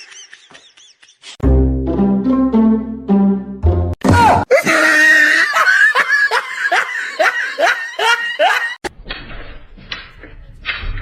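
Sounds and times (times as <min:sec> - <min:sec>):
background music: 0:01.4 - 0:04.3
person laughing hard: 0:04.3 - 0:08.8.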